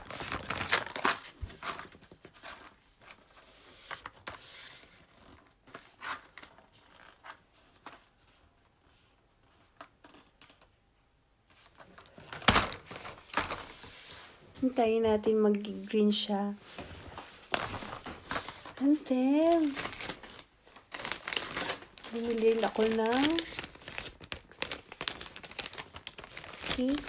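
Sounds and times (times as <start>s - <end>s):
packaging rustling: 0.0s - 8.4s, 11.6s - 14.4s, 16.6s - 27.0s.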